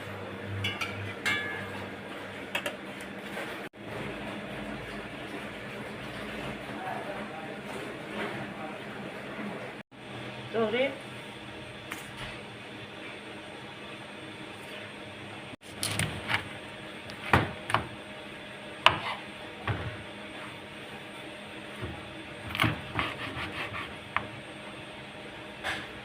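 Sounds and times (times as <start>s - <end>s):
knife chopping on cutting board: 18.8s - 19.8s, 22.5s - 24.3s.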